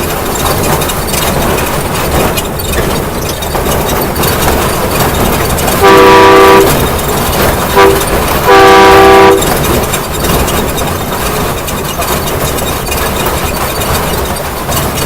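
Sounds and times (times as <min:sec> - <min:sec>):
train engine running: 0:00.0 - 0:15.0
train horn blasts: 0:05.8 - 0:06.9, 0:07.8 - 0:09.5.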